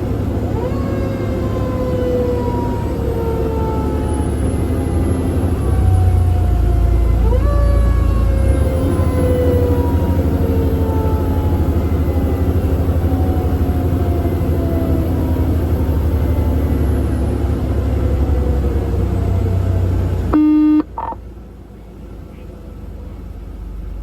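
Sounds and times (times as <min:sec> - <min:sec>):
fire engine engine drone: 0:00.0 - 0:24.0
mechanical siren winding down: 0:00.6 - 0:17.2, 0:18.0 - 0:21.2
horn blast: 0:20.3 - 0:21.2.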